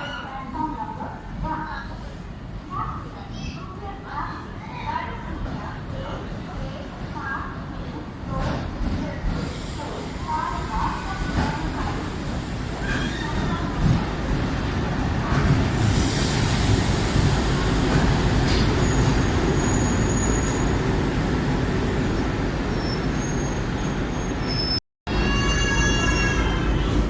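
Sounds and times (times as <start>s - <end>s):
train rolling noise: 5.2s - 27.0s
high-pitched wheel squeals: 22.7s - 26.8s.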